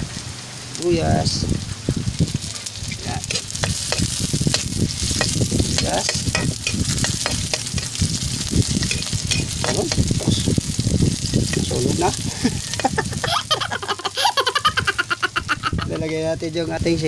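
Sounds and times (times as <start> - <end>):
food sizzling in hot oil: 0.0 - 17.0
metal spatula scraping pan: 3.2 - 10.3.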